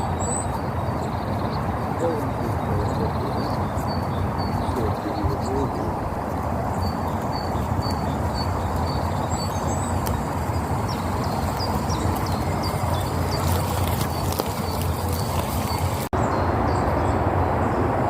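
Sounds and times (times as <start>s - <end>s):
electric powerchair motors droning: 6.9s - 16.1s.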